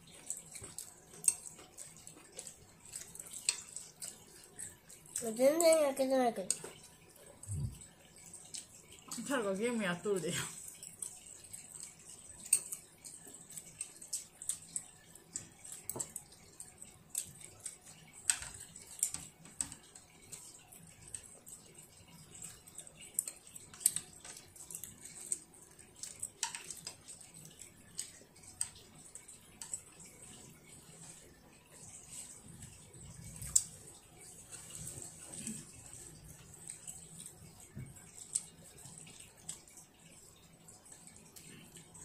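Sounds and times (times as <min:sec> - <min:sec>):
child chewing with mouth smacks: 0:00.0 - 0:09.4, 0:10.3 - 0:42.0.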